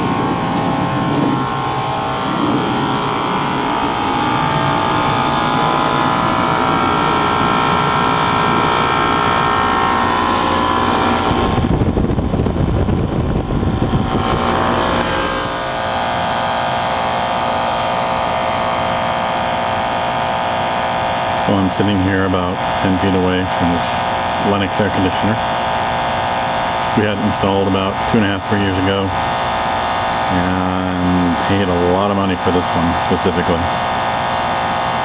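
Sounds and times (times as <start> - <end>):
low rumble: 0.0 - 17.6
air conditioner humming: 0.0 - 35.0.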